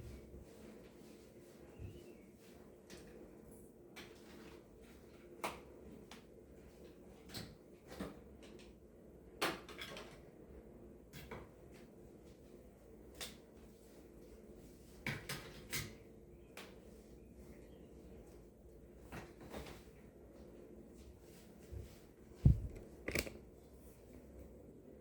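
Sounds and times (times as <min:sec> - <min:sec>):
steady low hum: 0:20.2 - 0:23.1
objects knocking and clicking: 0:22.4 - 0:23.4.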